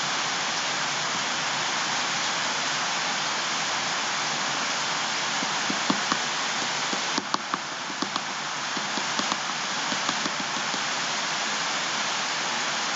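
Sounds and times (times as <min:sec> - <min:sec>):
water falling steadily: 0:00.0 - 0:12.9
water drip ticks: 0:05.4 - 0:11.0.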